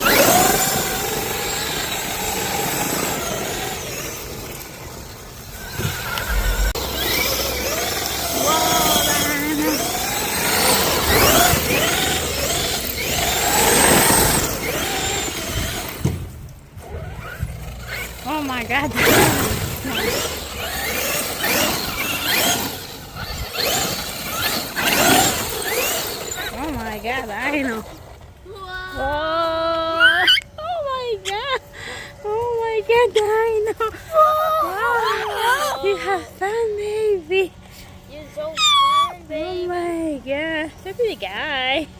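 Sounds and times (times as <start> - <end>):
electric motor whine: 0.0 - 27.8.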